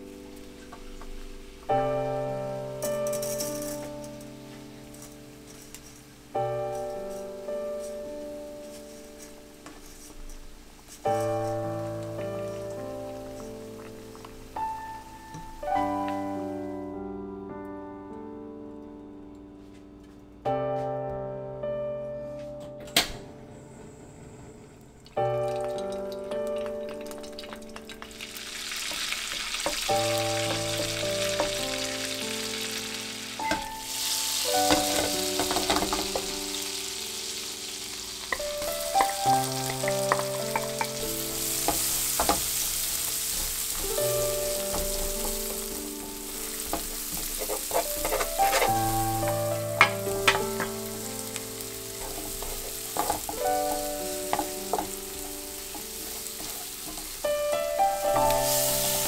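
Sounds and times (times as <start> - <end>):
food sizzling in a frying pan: 0.0 - 16.7, 25.2 - 59.0
background music with piano notes: 0.0 - 24.2, 25.0 - 59.0
wooden spatula scraping a pan: 6.7 - 14.4, 33.5 - 36.4, 38.3 - 57.3.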